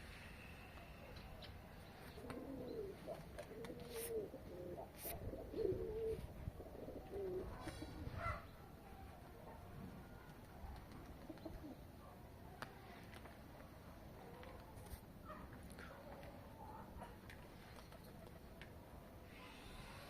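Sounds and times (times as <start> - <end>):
pigeons cooing: 2.0 - 8.6, 10.8 - 12.1.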